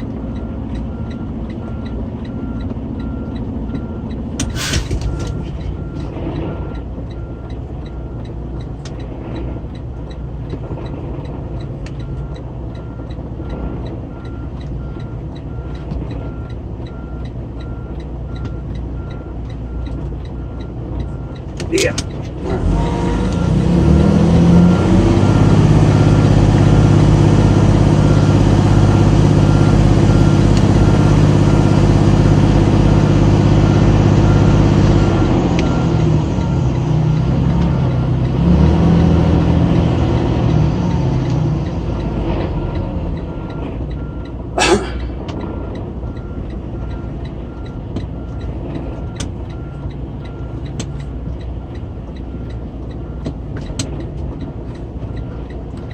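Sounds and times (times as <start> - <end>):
diesel engine revving: 0.0 - 55.9
reversing alarm beeping: 0.2 - 8.4, 12.0 - 26.9, 27.6 - 31.8, 33.4 - 44.4, 45.4 - 53.4
air brake hiss: 4.5 - 4.9.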